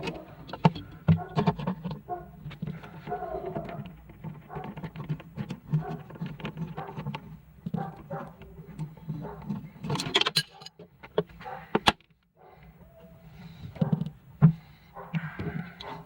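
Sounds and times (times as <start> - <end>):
clicks and rattles of hand work: 0.0 - 16.0.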